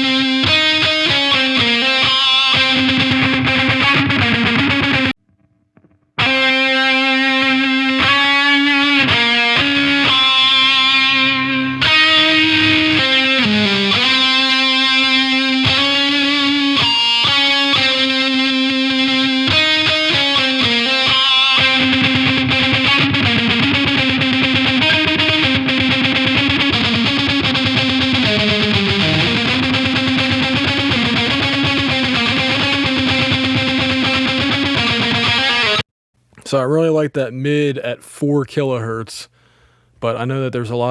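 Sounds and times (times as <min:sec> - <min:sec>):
distorted electric guitar riff: 0:00.0 - 0:35.8.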